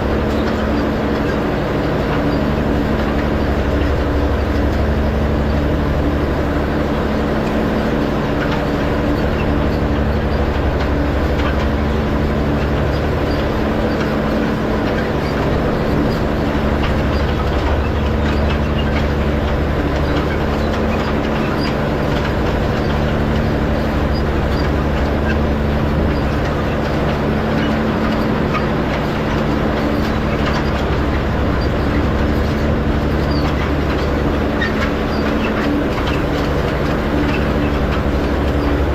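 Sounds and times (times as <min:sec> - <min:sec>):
hay rake rattling clatter: 0:00.0 - 0:38.9
tractor engine running: 0:00.0 - 0:38.9.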